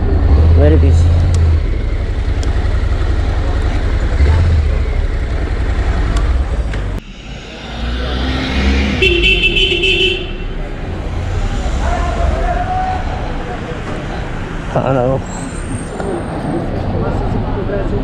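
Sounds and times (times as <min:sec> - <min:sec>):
motorcycle engine running: 0:00.0 - 0:07.0
road and wind noise: 0:00.0 - 0:18.0.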